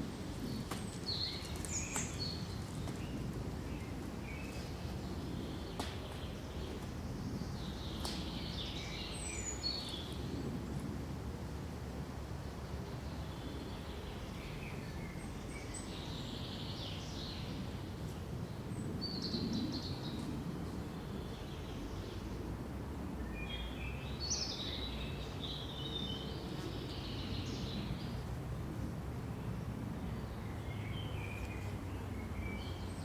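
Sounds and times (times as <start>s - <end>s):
wind in pines: 0.0s - 33.0s
small birds chirping: 0.4s - 10.3s.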